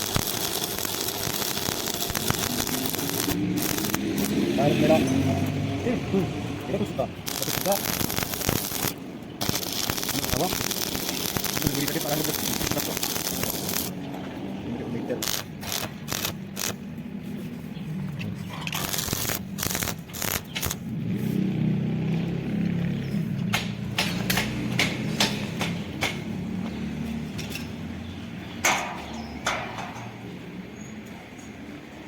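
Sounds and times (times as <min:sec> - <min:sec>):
sharp metal knocks and clanks: 0:23.4 - 0:30.4.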